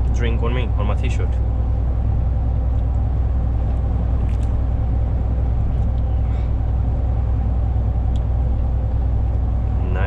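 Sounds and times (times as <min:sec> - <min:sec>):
truck engine running: 0:00.0 - 0:10.0.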